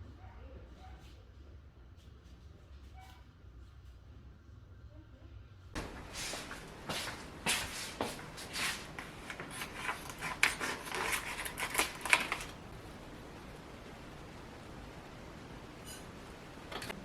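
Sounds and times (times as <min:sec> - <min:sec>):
faint steady hiss: 0:03.7 - 0:17.0
small objects rustling and clicking: 0:05.8 - 0:12.6.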